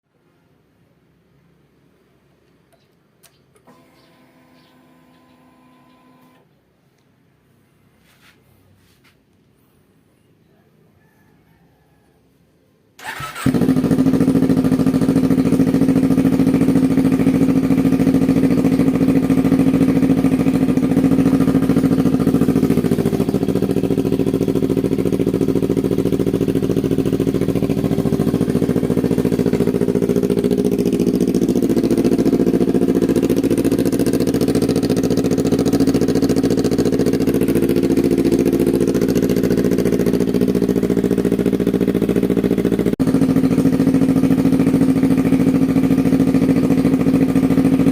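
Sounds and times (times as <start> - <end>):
motorcycle engine idling: 3.9 - 6.2, 13.0 - 47.9.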